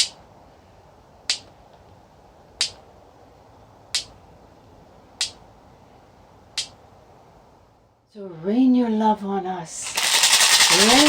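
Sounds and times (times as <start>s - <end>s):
sharp percussive clicks: 1.3s - 1.5s, 2.6s - 2.8s, 3.9s - 4.2s, 5.2s - 5.4s, 9.9s - 11.0s.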